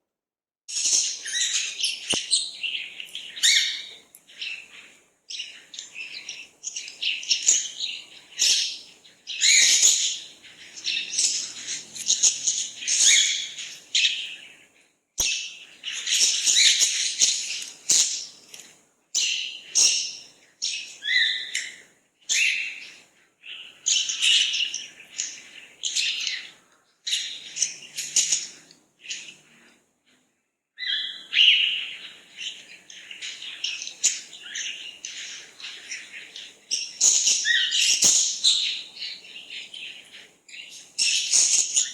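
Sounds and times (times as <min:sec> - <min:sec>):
birds chirping and calling: 0:00.7 - 0:30.2, 0:30.8 - 0:41.9.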